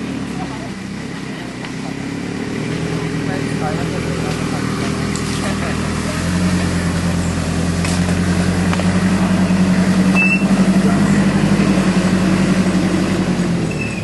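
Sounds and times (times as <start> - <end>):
vehicle engine running: 0.0 - 14.0
brief high squeak: 10.2 - 10.6, 13.7 - 14.0.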